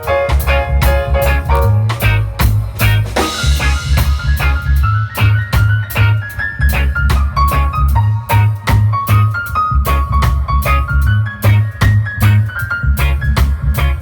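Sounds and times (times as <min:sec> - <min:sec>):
held lead melody: 0:00.0 - 0:14.0
reggae band playing: 0:00.0 - 0:14.0
cymbal crash: 0:02.8 - 0:04.8.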